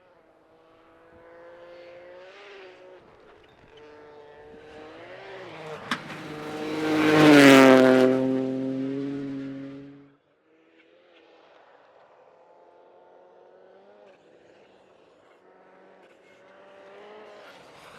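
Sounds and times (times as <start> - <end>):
rally car engine passing: 3.8 - 10.1.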